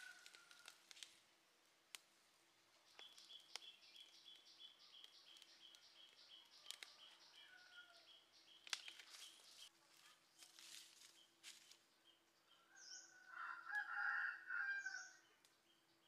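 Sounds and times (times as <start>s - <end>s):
wood fire crackling and popping: 0.0s - 7.2s, 8.5s - 9.7s
bird chirping: 2.8s - 13.6s.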